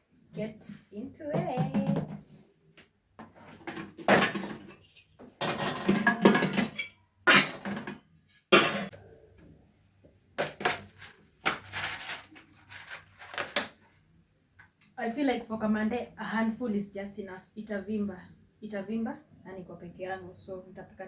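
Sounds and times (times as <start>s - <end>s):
pots and utensils clattering: 3.3s - 9.0s.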